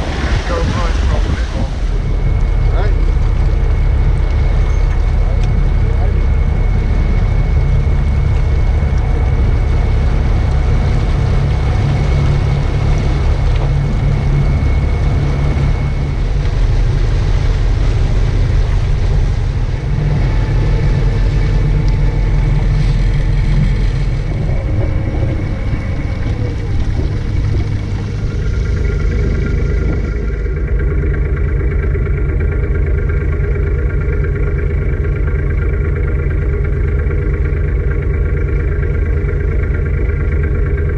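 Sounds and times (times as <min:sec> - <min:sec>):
boat engine rumble: 0:00.0 - 0:40.9
faint steady whine: 0:00.0 - 0:40.9.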